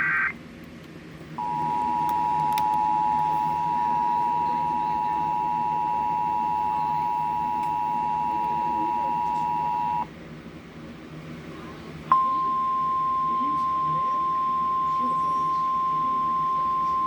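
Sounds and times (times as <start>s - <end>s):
two-tone alert signal: 12.1s - 17.0s.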